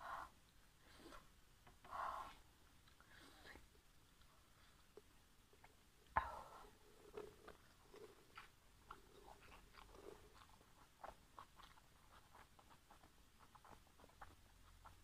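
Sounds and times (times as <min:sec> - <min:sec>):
chewing mouth clicks and smacks: 0:07.1 - 0:15.0.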